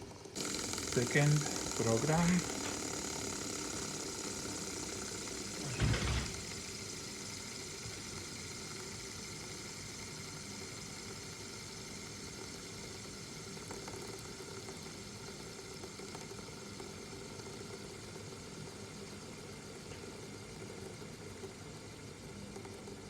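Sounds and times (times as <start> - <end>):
fidget spinner whirring: 0.0 - 23.0.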